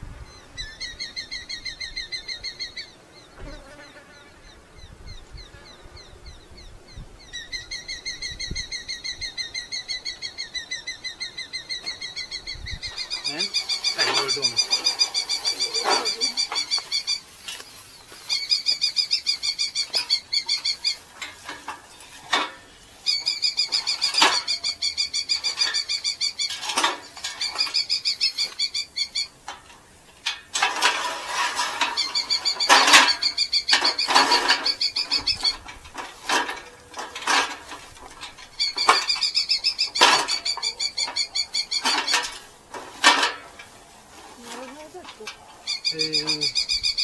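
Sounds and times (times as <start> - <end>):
falcons chattering calls: 7.4 - 29.5, 30.8 - 47.0
rustling: 11.8 - 47.0.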